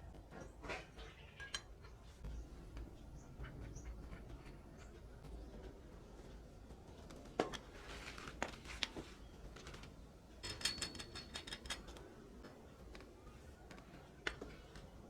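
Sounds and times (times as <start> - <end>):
ringing metallic clinks: 10.4 - 11.9.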